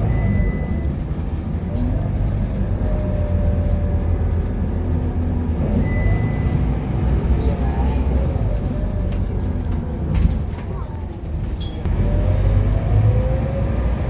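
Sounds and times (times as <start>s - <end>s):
bus diesel engine running: 0.0s - 14.0s
short high-pitched beep: 5.8s - 6.5s.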